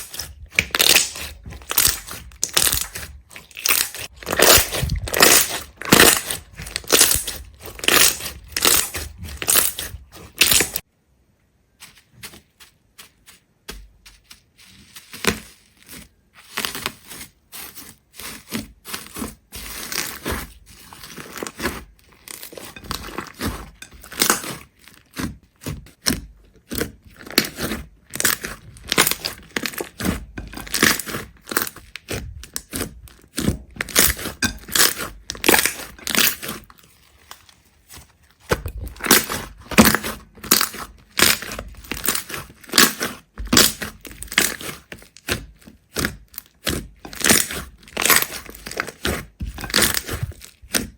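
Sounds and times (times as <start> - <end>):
crisp crunching and crackling: 0.0 - 10.9, 11.8 - 50.9.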